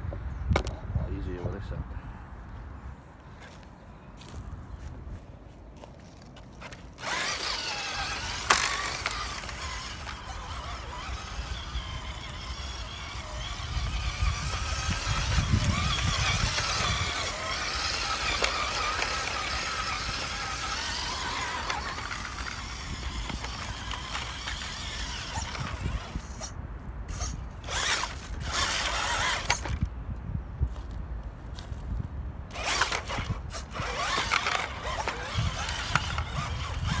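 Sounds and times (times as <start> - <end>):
rc car motor whining: 6.6 - 29.9, 32.5 - 37.0.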